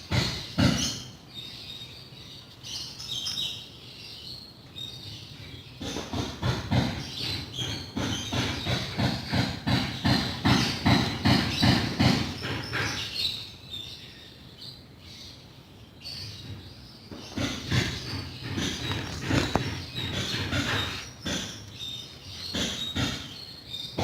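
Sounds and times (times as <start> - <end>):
rubbing strokes on wood: 17.3 - 21.8.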